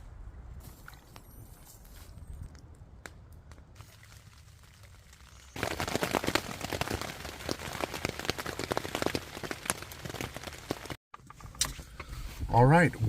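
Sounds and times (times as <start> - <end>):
rain pattering hard: 3.8 - 11.0.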